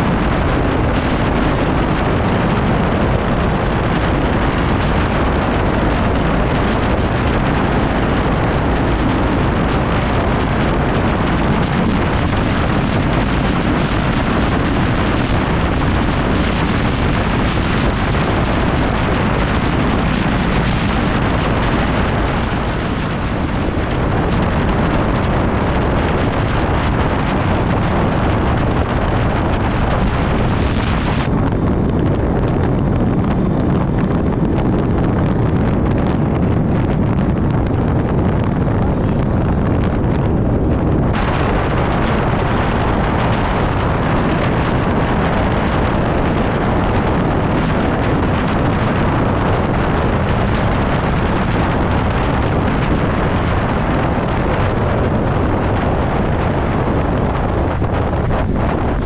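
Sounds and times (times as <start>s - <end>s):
road noise: 0.0s - 59.0s
wind rush on microphone: 0.0s - 59.0s.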